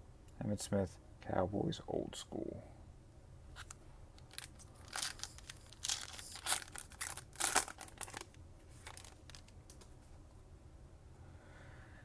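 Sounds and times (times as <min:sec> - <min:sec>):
foil wrapper crinkling and ripping: 0:03.6 - 0:09.8.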